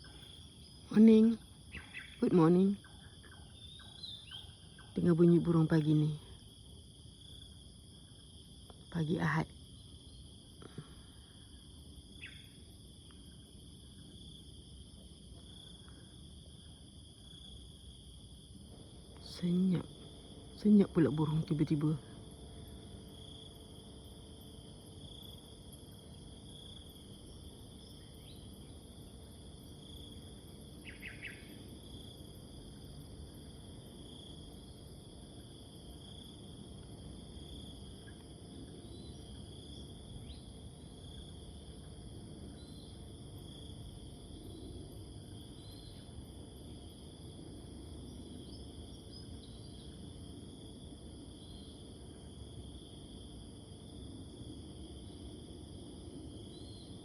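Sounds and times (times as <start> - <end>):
insects high continuous hiss: 0.0 - 57.0
insects pulsing trill: 0.0 - 57.0
faint bird chirps: 1.1 - 5.2, 12.2 - 12.6, 30.8 - 31.6.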